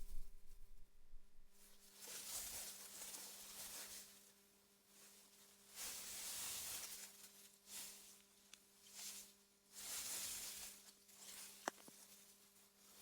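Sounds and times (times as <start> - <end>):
faint low hum: 0.0 - 1.9.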